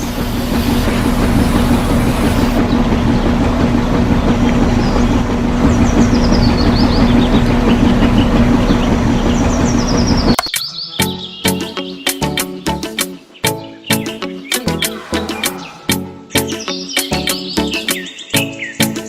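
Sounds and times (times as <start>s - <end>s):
vehicle motor running: 0.0s - 10.4s, 14.6s - 16.6s
bird chirps: 5.7s - 19.0s.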